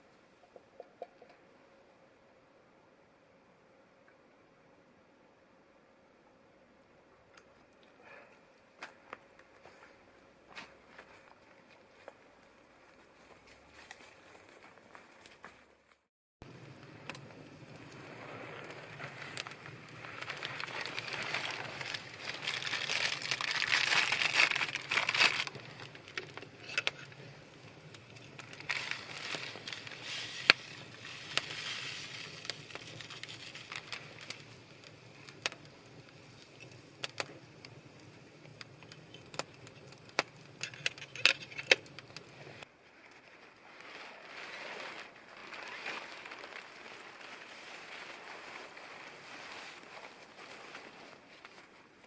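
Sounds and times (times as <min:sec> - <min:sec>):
crackles and pops: 0:10.5 - 0:52.0
rustling rush: 0:16.5 - 0:35.4, 0:43.2 - 0:52.0.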